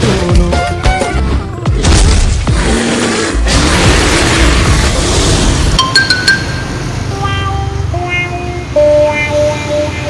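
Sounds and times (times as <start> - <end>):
short high chiming tones: 5.8 - 7.1.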